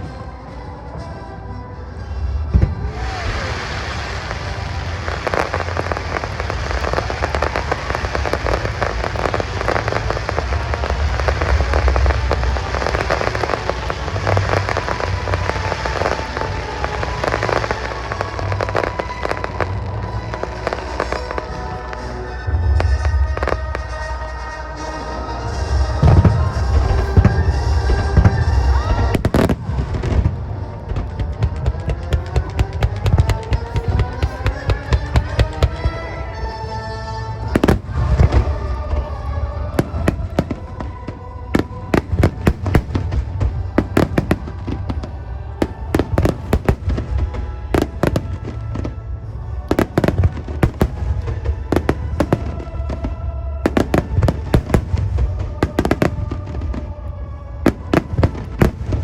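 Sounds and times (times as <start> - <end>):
music playing: 0.0 - 59.0
firework shells bursting: 30.9 - 36.1.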